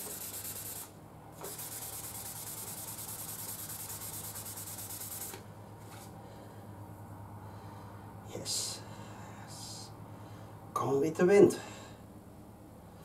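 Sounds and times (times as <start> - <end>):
abrasive paper rubbing on metal tube: 0.0 - 5.4.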